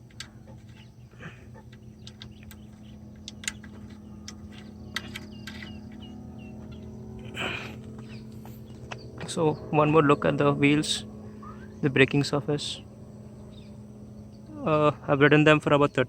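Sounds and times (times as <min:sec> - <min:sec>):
low steady hum: 0:00.0 - 0:16.0
high bird chirps: 0:00.5 - 0:07.1, 0:13.2 - 0:14.6.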